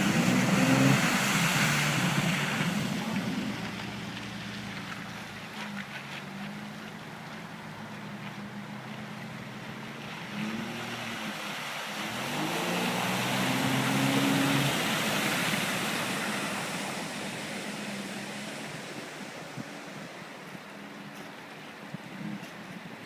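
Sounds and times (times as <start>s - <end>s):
vehicle engine revving: 0.0s - 5.3s, 7.6s - 18.9s
vehicle passing by: 0.0s - 5.9s, 7.6s - 20.4s.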